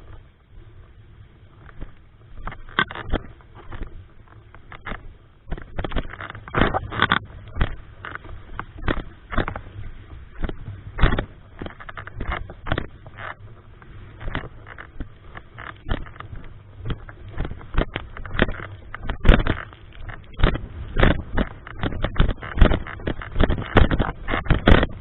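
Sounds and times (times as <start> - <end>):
low rumble: 0.0 - 25.0
strong wind buffeting microphone: 5.4 - 25.0.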